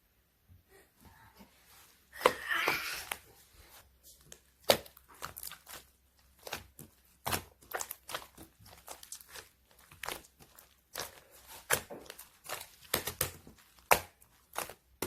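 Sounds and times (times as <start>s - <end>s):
slime squishing: 1.7s - 15.0s.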